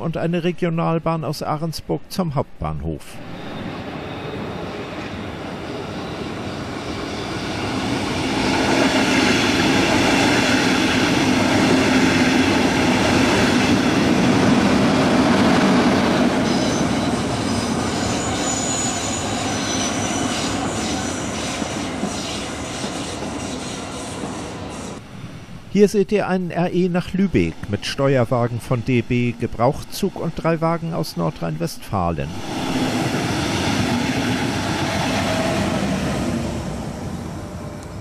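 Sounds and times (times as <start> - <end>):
train passing: 3.1 - 38.0
high wheel squeal: 3.2 - 9.8, 15.7 - 25.0
clicking train wheels: 6.8 - 25.0.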